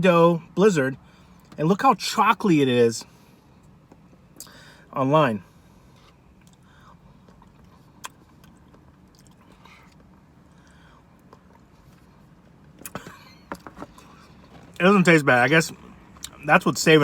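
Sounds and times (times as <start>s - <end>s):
person chewing ice cream: 5.9s - 12.2s, 15.7s - 16.5s.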